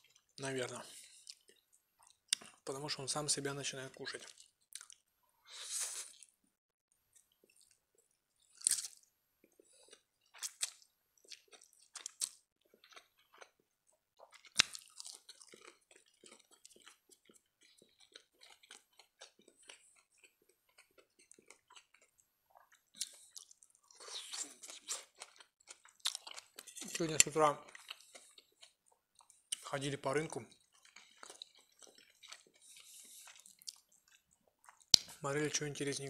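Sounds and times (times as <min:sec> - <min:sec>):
close-miked chewing: 0:00.0 - 0:02.7, 0:04.1 - 0:05.0, 0:07.2 - 0:35.2
wet mouth clicks and smacks: 0:33.2 - 0:35.2.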